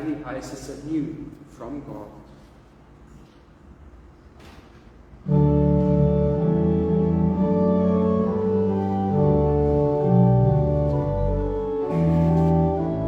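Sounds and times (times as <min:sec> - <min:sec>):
organ playing hymn chords: 0:05.2 - 0:13.0.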